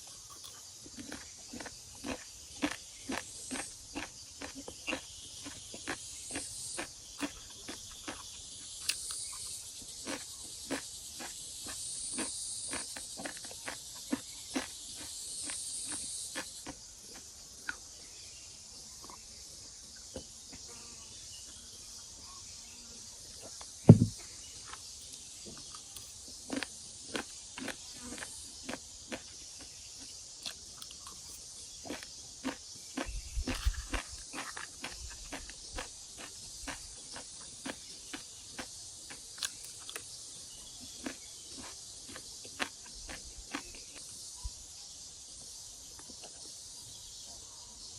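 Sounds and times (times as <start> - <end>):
insects buzzing: 0.0 - 47.9
loud low thump: 23.9 - 24.2.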